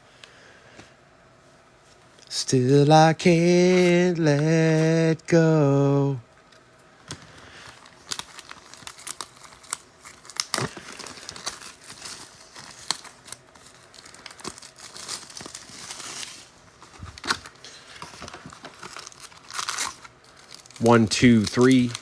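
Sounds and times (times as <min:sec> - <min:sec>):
plastic wrap crinkling and tearing: 0:07.2 - 0:22.0.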